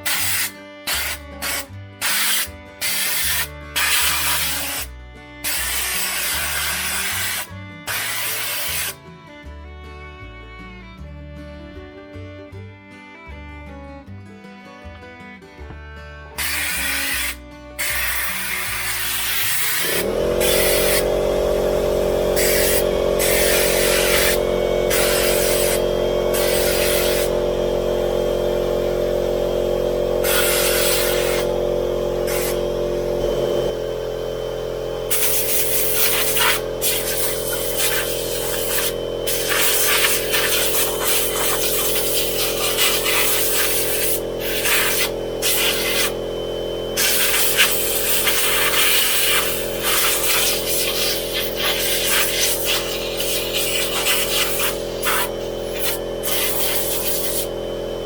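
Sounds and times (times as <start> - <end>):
bursts of hissing air: 0.0 - 9.0, 16.4 - 27.4, 30.2 - 31.5, 32.2 - 32.6, 35.1 - 46.2, 47.0 - 57.5
motor running: 0.0 - 11.0, 15.6 - 58.0.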